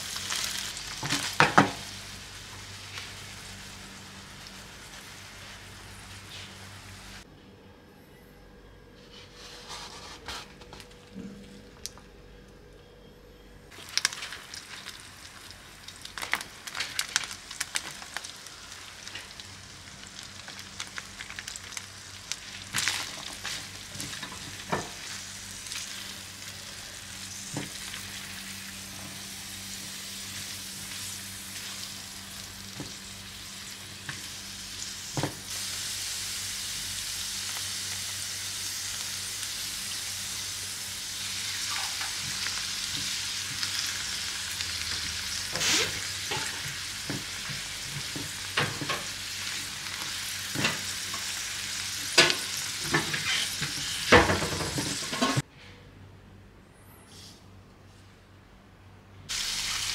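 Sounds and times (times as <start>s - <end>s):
food sizzling in a pan: 0.0s - 7.2s, 13.7s - 55.4s, 59.3s - 59.9s
sauce sizzling in hot pan: 13.7s - 55.2s, 59.3s - 59.9s.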